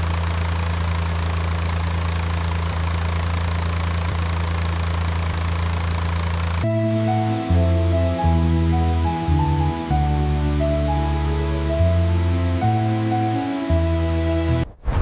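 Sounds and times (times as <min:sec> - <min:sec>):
engine idling hum: 0:00.0 - 0:14.7.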